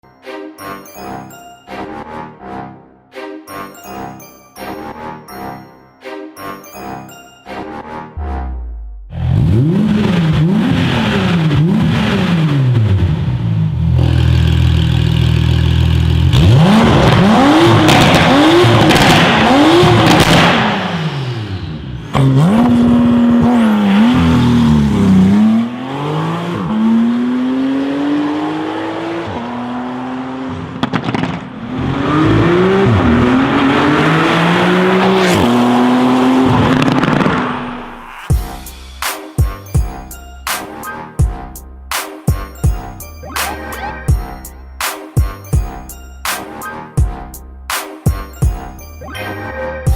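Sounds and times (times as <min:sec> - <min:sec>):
sports car engine revving: 0:08.9 - 0:37.8.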